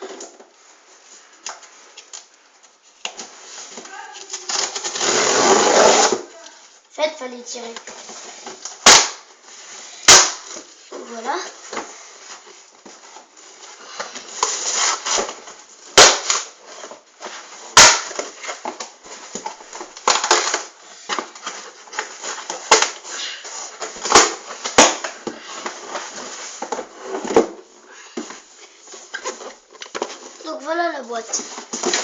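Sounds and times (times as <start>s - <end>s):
cardboard rustling and crackling: 7.6s - 32.0s.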